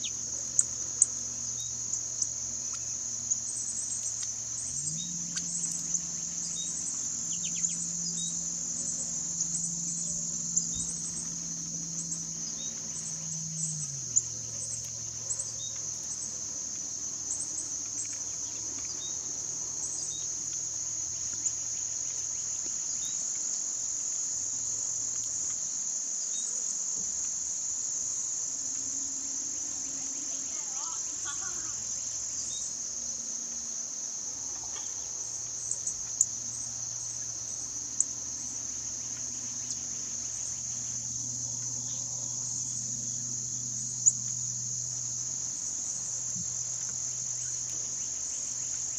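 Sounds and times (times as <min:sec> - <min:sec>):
low hum: 0:00.0 - 0:22.2
high-pitched insect chorus: 0:00.0 - 0:48.9.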